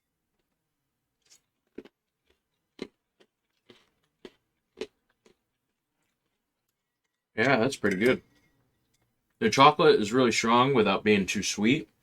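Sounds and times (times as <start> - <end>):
chewing crunchy cereal: 0.3 - 7.3.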